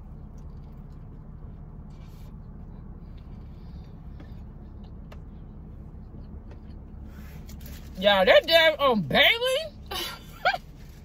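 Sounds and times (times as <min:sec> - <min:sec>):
chewing and mouth clicks: 0:00.0 - 0:07.7
steady low rumble: 0:00.0 - 0:11.0.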